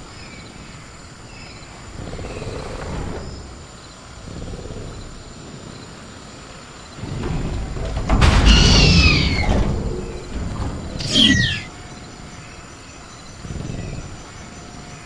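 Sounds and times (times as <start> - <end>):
dinosaur growls: 1.8 - 6.0, 10.8 - 11.7
faint bird chirps: 11.0 - 15.0
high cricket trill: 11.0 - 15.0.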